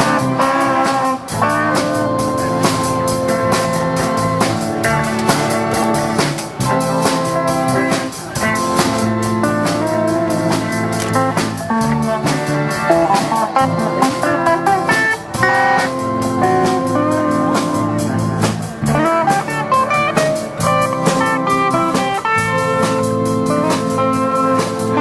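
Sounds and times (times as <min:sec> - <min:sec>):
drum kit beat: 0:00.0 - 0:25.0
guitar lines: 0:00.0 - 0:25.0.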